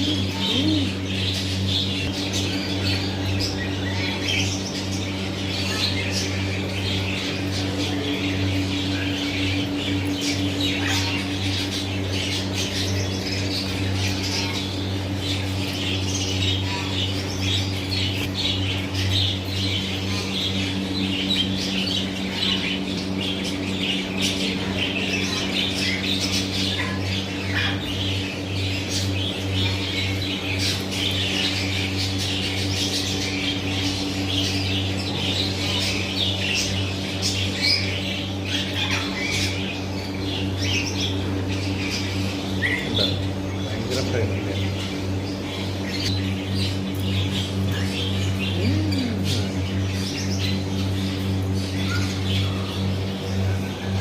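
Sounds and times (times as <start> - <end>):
birds chirping and squawking: 0.0 - 54.0
steady low hum: 0.0 - 54.0.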